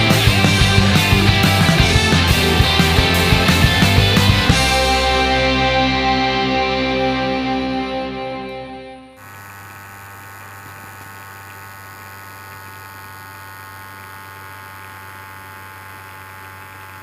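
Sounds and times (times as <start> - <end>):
rock music: 0.0 - 9.2
buzzing electric hum: 0.0 - 17.0.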